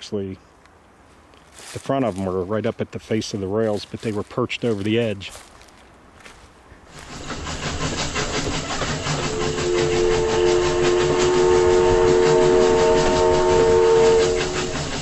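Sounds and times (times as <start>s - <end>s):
steam locomotive running: 6.8s - 15.0s
steam whistle chord: 9.0s - 15.0s.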